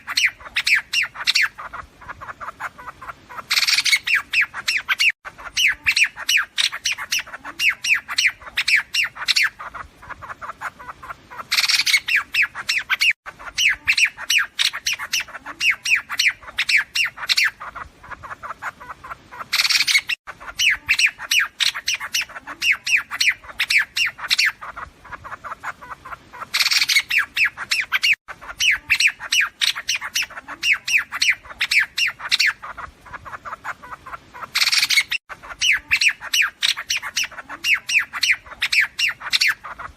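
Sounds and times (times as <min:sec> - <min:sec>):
bird chattering and sharp chirps: 0:00.0 - 0:39.9.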